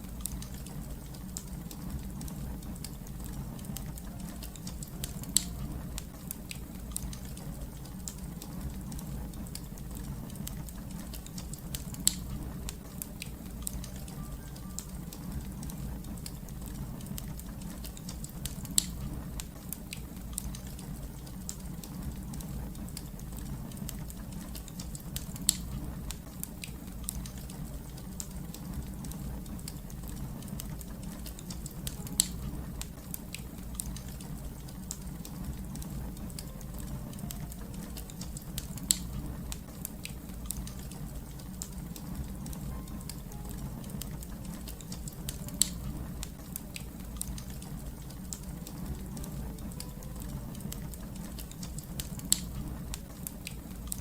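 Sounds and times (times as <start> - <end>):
fire crackling and popping: 0.0 - 54.0
low rumble of fire: 0.0 - 54.0.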